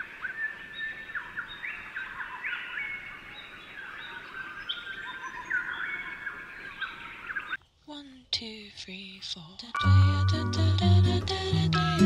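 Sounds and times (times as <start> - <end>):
birds chirping and whistling: 0.0 - 7.6.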